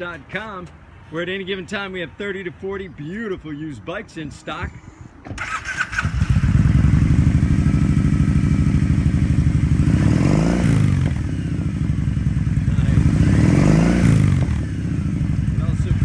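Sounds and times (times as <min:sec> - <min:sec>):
engine revving: 0:05.4 - 0:16.0
motorcycle engine idling: 0:05.4 - 0:16.0.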